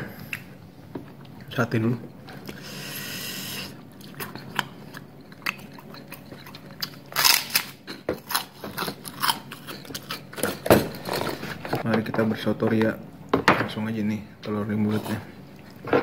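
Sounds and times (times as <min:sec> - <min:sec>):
mouth chewing sounds: 0:02.3 - 0:10.3
cracker crunching: 0:04.0 - 0:10.6.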